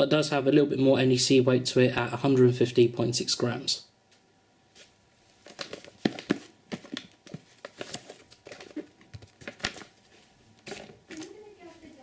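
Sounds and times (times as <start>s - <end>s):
packaging crinkling and rustling: 5.2s - 12.0s.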